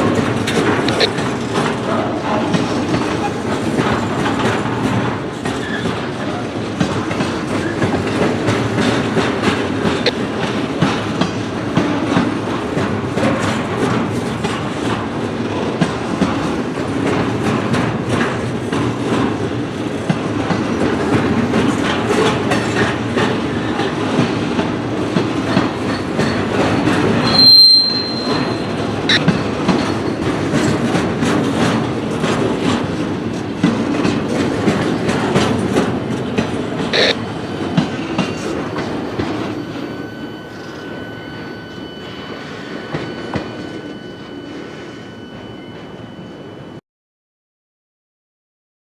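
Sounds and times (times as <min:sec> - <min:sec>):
wheels clicking over rail joints: 0:00.0 - 0:39.9
freight cars rumbling on rails: 0:00.0 - 0:45.3
high-pitched wheel squeal: 0:27.2 - 0:29.2.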